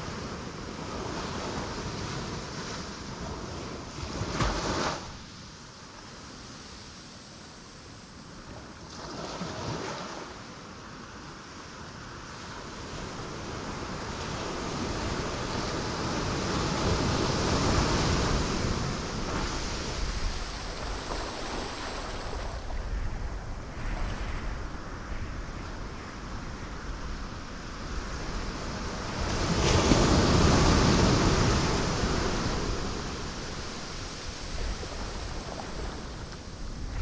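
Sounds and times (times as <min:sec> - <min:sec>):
ocean waves breaking on rocks: 0:12.8 - 0:37.0.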